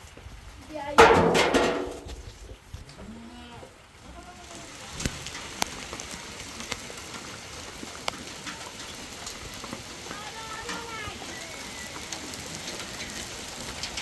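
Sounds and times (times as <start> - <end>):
rain falling: 0.0 - 14.0
large drops tapping a surface: 1.0 - 2.3.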